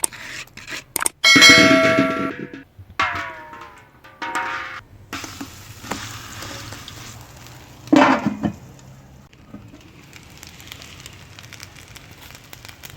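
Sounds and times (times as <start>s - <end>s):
cutlets sizzling in a pan: 5.1s - 12.9s.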